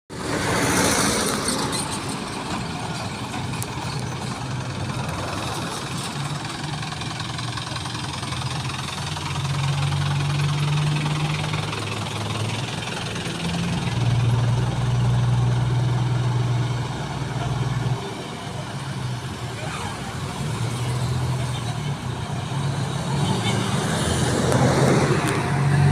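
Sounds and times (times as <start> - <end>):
excavator diesel engine drone: 0.1 - 25.9.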